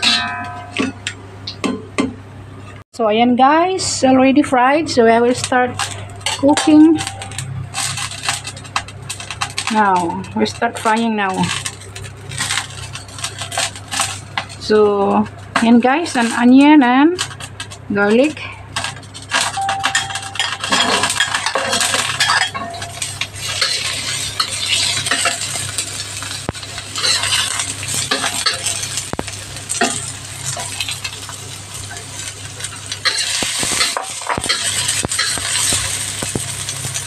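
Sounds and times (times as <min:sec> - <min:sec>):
onion and garlic sizzling in oil: 0:05.3 - 0:37.0.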